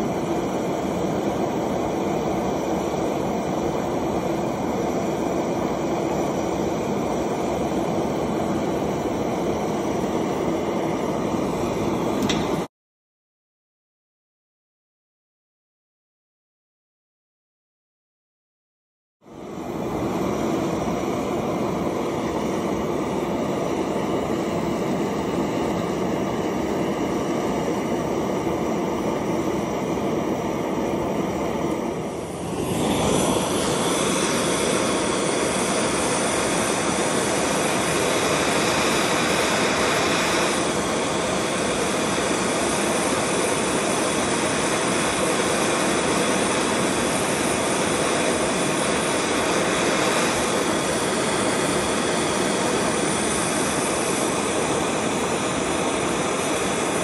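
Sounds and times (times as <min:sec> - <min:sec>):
gas torch roaring: 0:00.0 - 0:12.7, 0:19.2 - 0:57.0.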